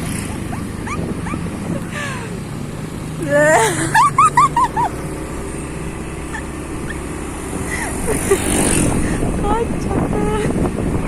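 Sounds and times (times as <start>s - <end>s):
motorcycle running: 0.0s - 11.0s
dog yelping: 0.1s - 1.9s, 6.3s - 7.0s.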